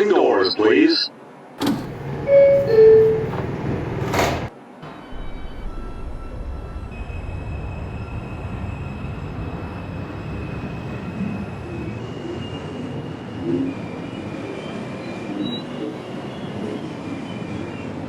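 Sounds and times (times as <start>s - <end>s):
train wheels rumbling on rail: 1.6s - 15.1s.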